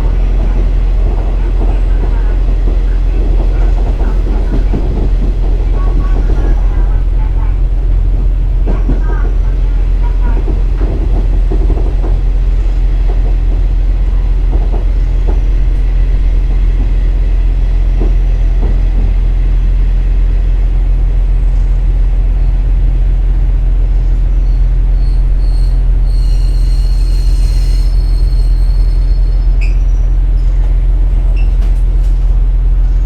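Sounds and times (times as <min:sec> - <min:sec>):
diesel railcar engine drone: 0:00.0 - 0:33.0
rail joint clicks: 0:00.0 - 0:33.0
high-pitched squeal: 0:24.9 - 0:29.2.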